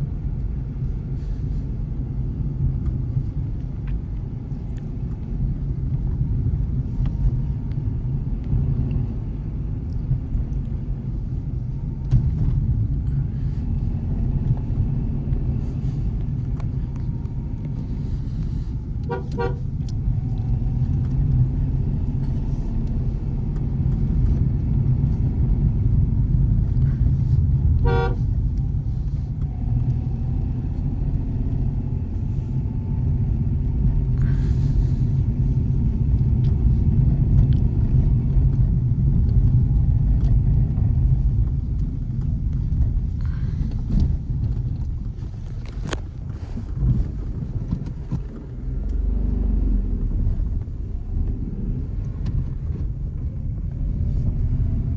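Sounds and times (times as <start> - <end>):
engine and road noise: 0.0 - 54.9
car horn tooting: 19.0 - 19.7, 27.8 - 28.3.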